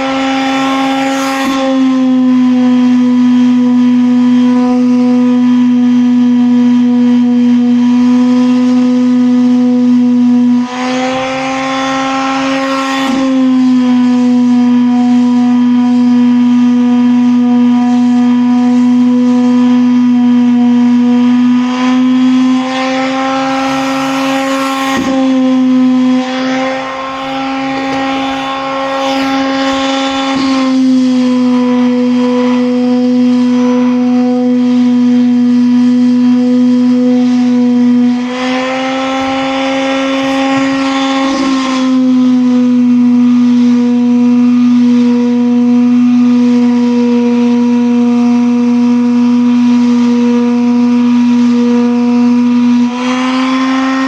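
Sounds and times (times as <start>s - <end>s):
rough scratchy noise: 22.2s - 31.0s.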